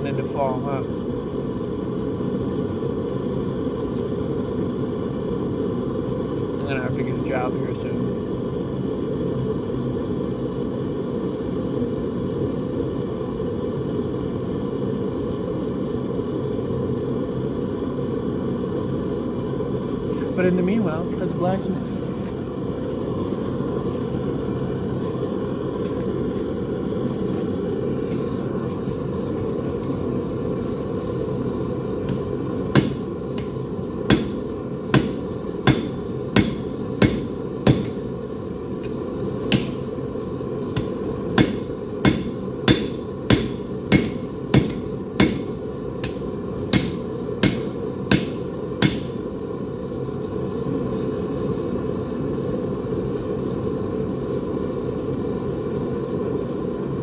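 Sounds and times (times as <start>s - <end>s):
forge burner roaring: 0.0s - 57.0s
hammer striking metal on anvil: 32.1s - 38.0s, 38.8s - 39.9s, 40.8s - 49.2s.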